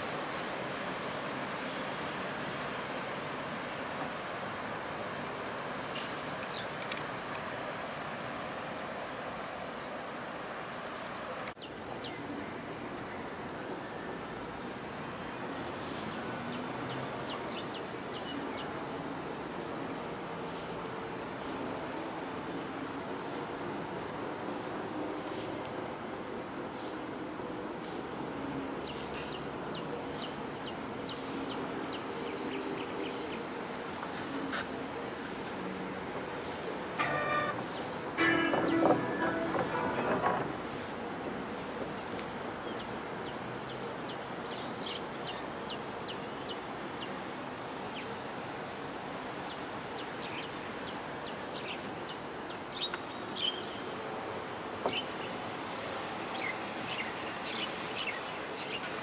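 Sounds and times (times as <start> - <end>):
river hiss: 0.0 - 11.5
background hiss: 0.0 - 59.0.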